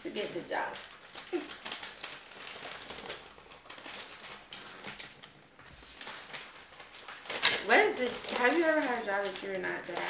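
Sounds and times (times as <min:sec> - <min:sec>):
wrapping paper rustling: 0:00.0 - 0:10.0
tape handling: 0:00.1 - 0:10.0.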